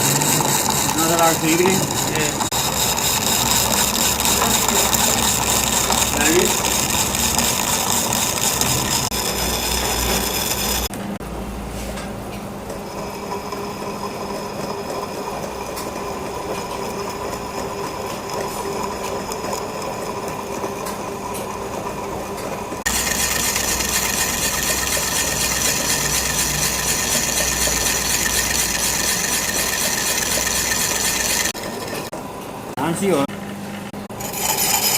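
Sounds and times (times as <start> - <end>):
cutting tool on wood: 0.0 - 10.9, 34.2 - 34.9
lathe running: 0.0 - 10.9, 22.7 - 32.1, 34.2 - 34.9.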